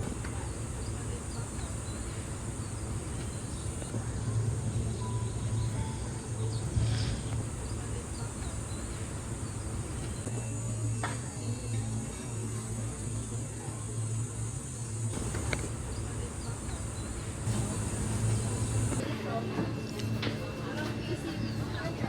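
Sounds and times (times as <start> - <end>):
faint chirps: 0.0 - 11.8, 15.1 - 19.0
continuous low hum: 0.0 - 22.0.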